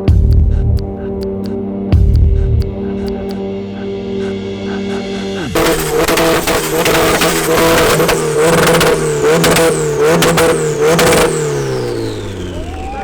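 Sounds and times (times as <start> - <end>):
car engine revving hard: 5.6 - 13.0.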